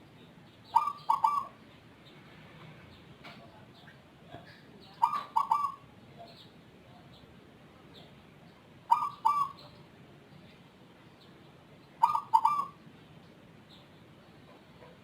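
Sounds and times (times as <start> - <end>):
dove cooing: 0.7 - 1.6, 5.0 - 5.8, 8.9 - 9.7, 12.0 - 12.8.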